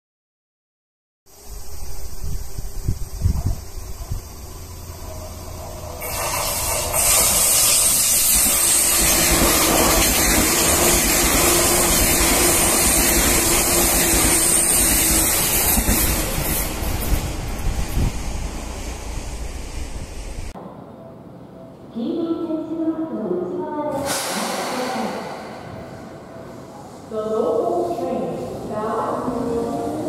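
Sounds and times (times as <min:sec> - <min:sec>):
electric train passing: 0:01.3 - 0:22.0, 0:24.1 - 0:30.0.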